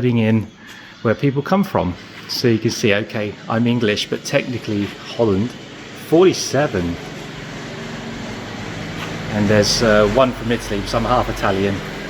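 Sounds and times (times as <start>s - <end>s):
engine drone with low rumble: 3.4s - 12.0s.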